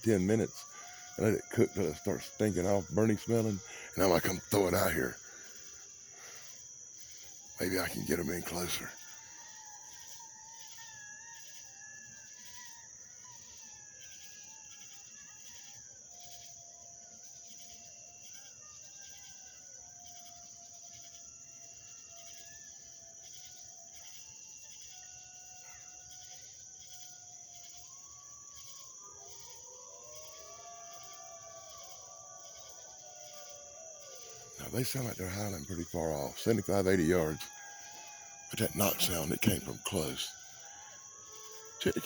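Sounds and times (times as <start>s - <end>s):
night insects trilling: 0.0s - 42.0s
distant howling: 33.2s - 42.0s.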